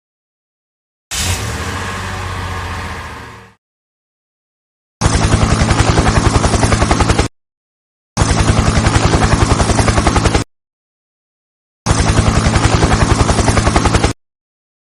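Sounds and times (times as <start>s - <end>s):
helicopter rotor chopping: 5.0s - 7.3s, 8.2s - 10.4s, 11.9s - 14.2s.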